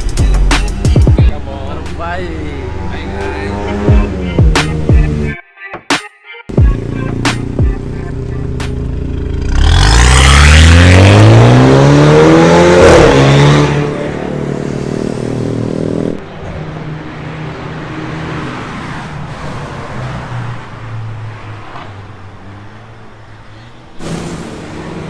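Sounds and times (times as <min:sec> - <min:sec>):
car engine revving: 0:02.2 - 0:05.3, 0:06.5 - 0:16.3, 0:24.0 - 0:25.0.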